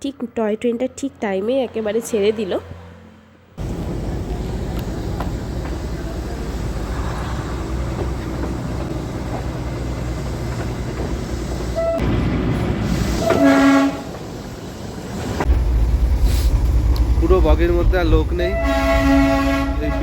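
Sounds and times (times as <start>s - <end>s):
train rolling rumble: 3.6s - 20.0s
locomotive horn blast: 11.7s - 12.2s, 13.1s - 14.2s, 18.4s - 20.0s.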